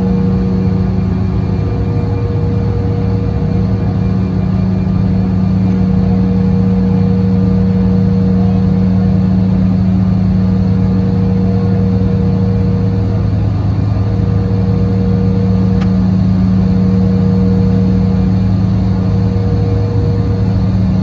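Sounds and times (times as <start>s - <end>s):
jet engine cabin hum: 0.0s - 21.0s.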